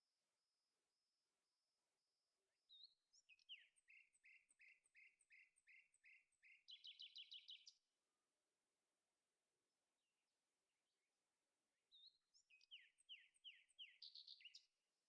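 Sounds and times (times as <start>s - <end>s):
songbird whistling and trilling: 2.7s - 7.7s, 12.0s - 14.6s.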